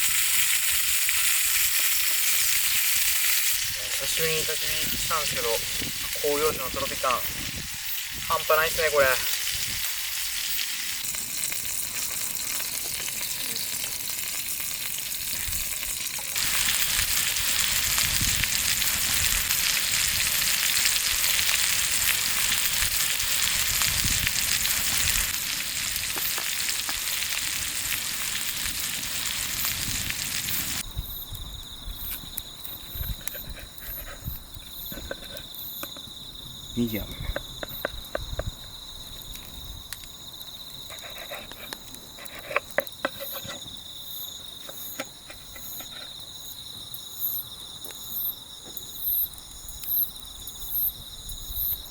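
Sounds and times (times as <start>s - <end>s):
steak sizzling over fire: 0.0s - 47.4s
insects chirping: 0.0s - 51.9s.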